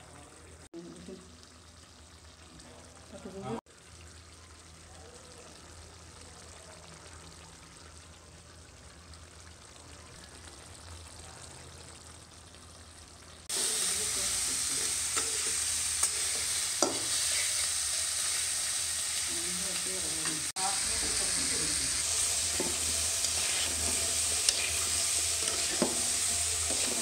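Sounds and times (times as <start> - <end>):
shrimp sizzling in hot oil: 9.8 - 27.0
spatula scraping pan: 15.0 - 18.5, 22.0 - 27.0.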